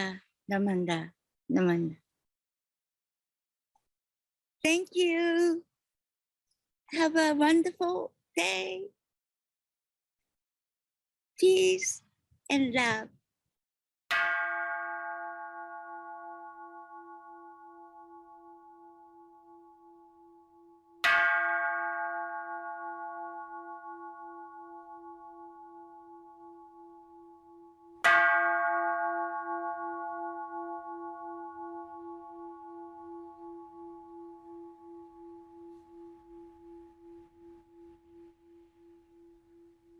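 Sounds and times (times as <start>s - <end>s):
bowl bell ringing: 14.1s - 39.9s.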